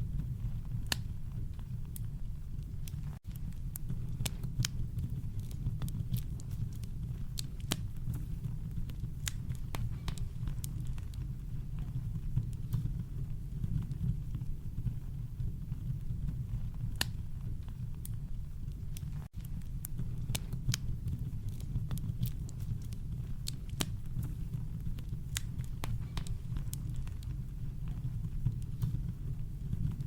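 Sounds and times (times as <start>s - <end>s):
campfire crackling: 0.1s - 30.0s.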